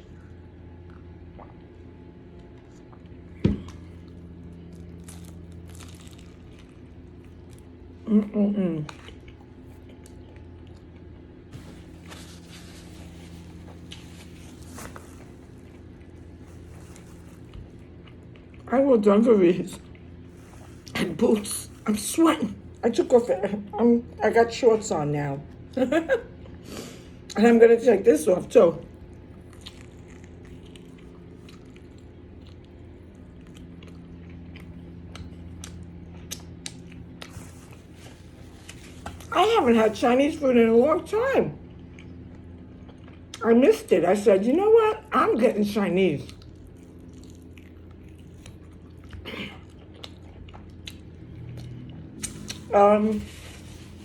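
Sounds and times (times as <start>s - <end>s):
person chewing food: 0.0s - 8.1s, 8.8s - 18.7s, 19.7s - 21.8s, 28.9s - 39.3s, 41.6s - 43.4s, 46.3s - 52.7s
low room hum: 0.0s - 54.0s.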